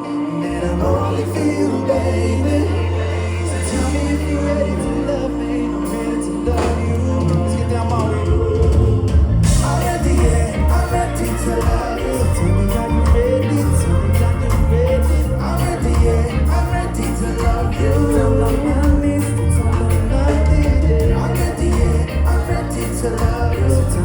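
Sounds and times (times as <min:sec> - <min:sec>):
live reggae band: 0:00.0 - 0:24.0
pulsing bass line: 0:00.0 - 0:24.0.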